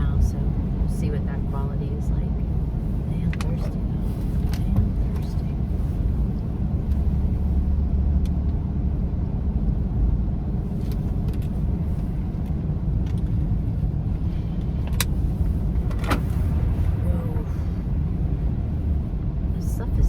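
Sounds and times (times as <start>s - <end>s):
car engine rumble: 0.0s - 20.0s
tyre and road noise on slush: 10.6s - 20.0s.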